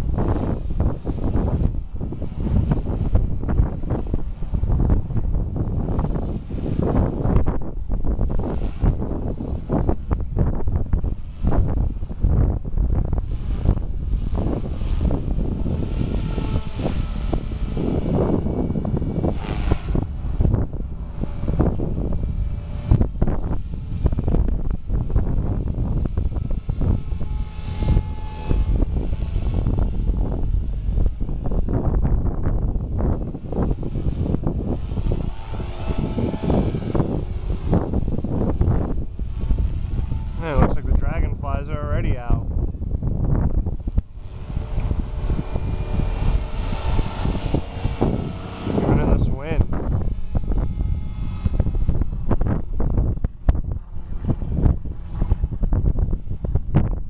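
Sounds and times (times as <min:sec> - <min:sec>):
rc helicopter rotor whine: 0:00.0 - 0:57.0
wind buffeting microphone: 0:00.0 - 0:57.0.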